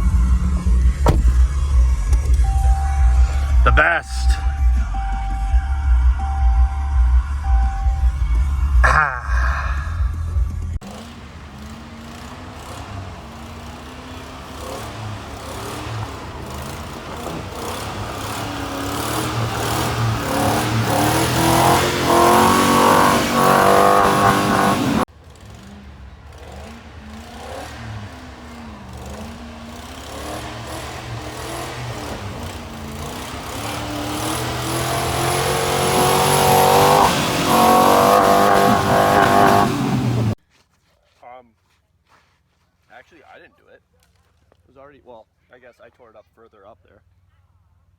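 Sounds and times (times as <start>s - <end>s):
pickup truck engine revving: 0.0s - 5.2s, 10.8s - 40.4s.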